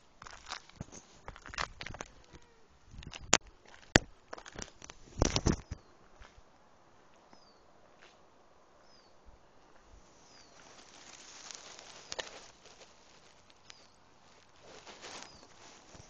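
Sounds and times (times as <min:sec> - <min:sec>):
rustling scuff: 0:10.3 - 0:16.0.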